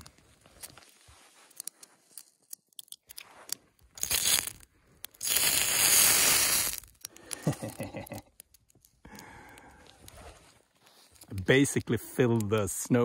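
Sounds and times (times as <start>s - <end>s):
small clicks and crackles: 0.0s - 13.0s
flame whooshing bursts: 5.2s - 6.8s.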